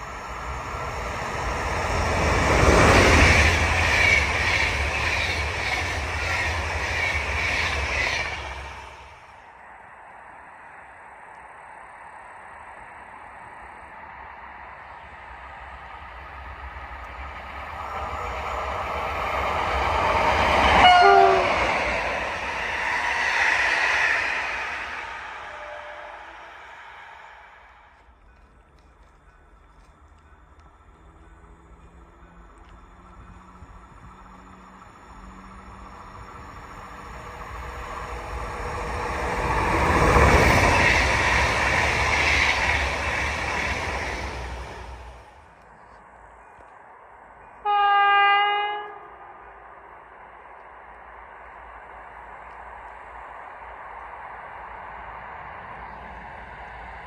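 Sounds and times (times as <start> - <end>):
train passing: 0.0 - 57.0
train horn blast: 20.7 - 21.7, 25.4 - 26.6, 47.6 - 49.6.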